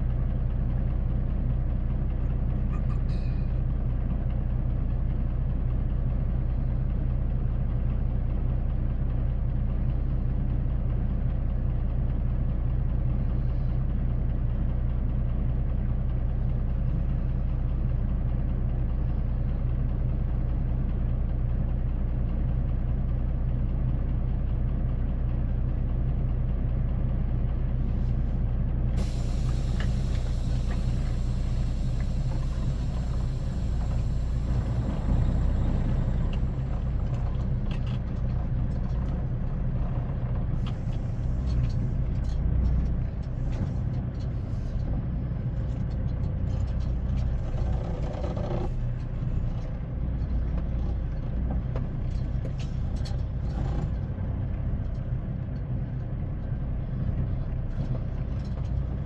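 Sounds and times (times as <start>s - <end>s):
truck diesel engine humming: 24.6s - 59.0s.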